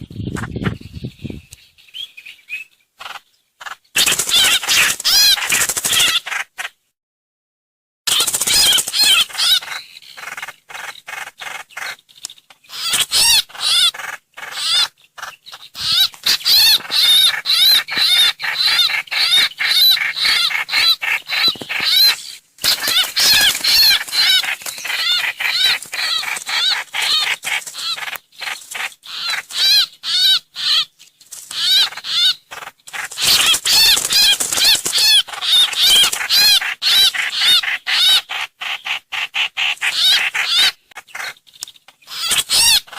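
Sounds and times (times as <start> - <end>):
bird chirping looping notes: 12.8 - 30.0.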